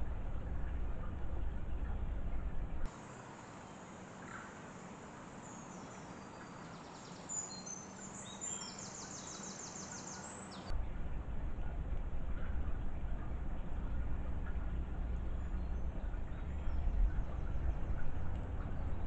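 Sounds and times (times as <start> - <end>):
steady low rumble: 0.0 - 2.9, 10.7 - 19.0
faint woodland ambience: 0.0 - 19.0
birds chirping: 3.1 - 10.7, 12.4 - 19.0.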